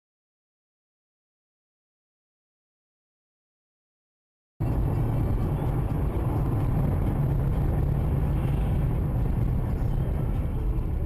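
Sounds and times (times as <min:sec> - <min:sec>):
car engine and road rumble: 0:04.6 - 0:11.0.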